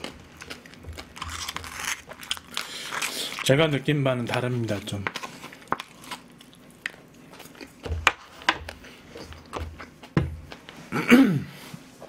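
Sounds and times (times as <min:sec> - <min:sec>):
man chewing with wet smacks: 0:00.0 - 0:03.5, 0:05.1 - 0:10.9.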